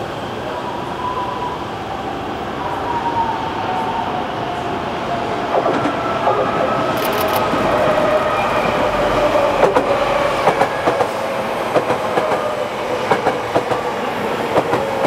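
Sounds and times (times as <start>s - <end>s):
electric train approaching: 0.0s - 15.0s
sharp clicks: 7.0s - 7.4s.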